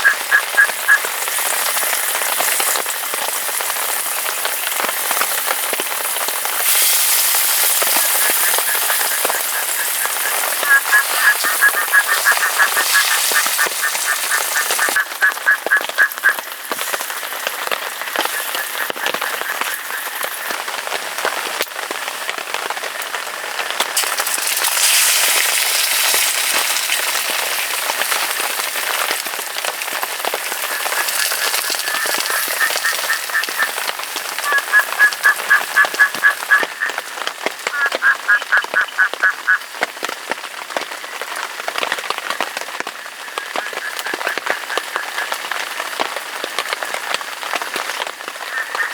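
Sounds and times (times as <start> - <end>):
frog calling: 0.0 - 20.8, 27.9 - 39.7, 48.4 - 48.9
rain falling: 0.0 - 48.9.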